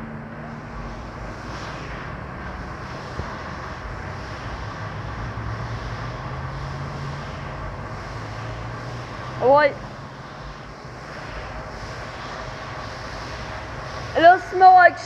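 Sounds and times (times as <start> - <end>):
car wash mechanical hum: 0.0 - 15.0
water spray hiss: 0.3 - 15.0.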